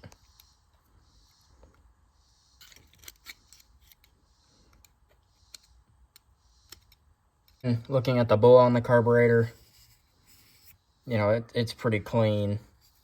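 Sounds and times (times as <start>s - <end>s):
small metal parts clicking: 2.6s - 4.2s.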